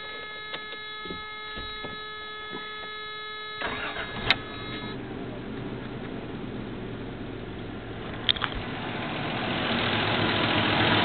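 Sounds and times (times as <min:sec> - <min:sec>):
high electronic tone: 0:00.0 - 0:05.0
car engine cranking and idling: 0:00.0 - 0:11.0.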